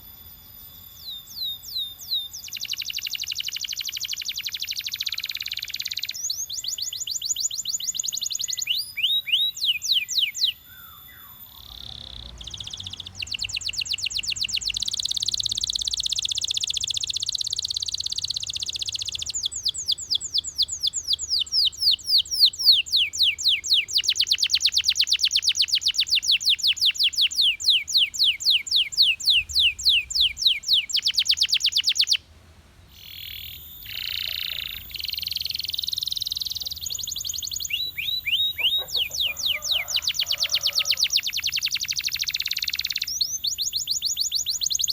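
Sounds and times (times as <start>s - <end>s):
canary singing trills: 0.0s - 32.2s, 32.8s - 44.9s.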